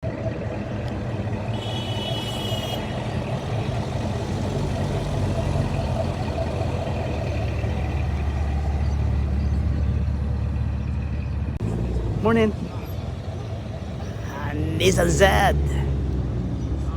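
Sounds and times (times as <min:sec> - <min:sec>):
car engine idling: 0:00.5 - 0:11.6.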